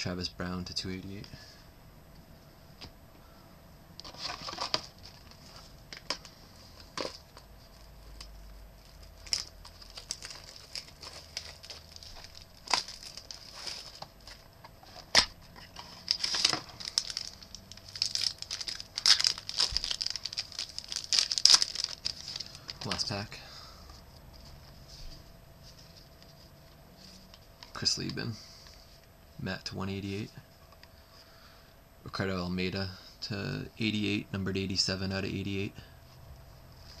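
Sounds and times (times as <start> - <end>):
wrapper crinkling and tearing: 7.8 - 14.4, 15.0 - 23.3.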